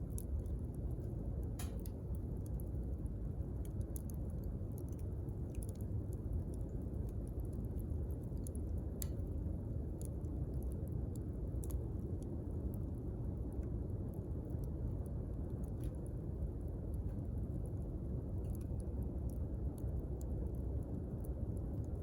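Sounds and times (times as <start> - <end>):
bonfire rumble: 0.0 - 22.0
fire crackles and pops: 0.0 - 22.0.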